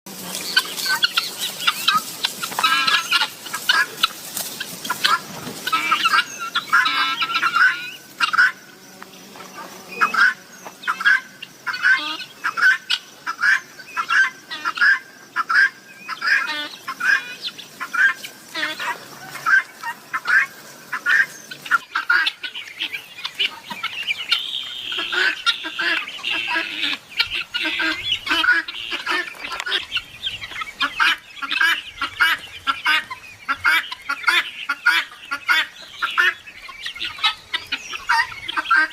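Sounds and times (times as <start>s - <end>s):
guineafowl calling: 0.2s - 8.8s, 9.5s - 38.9s.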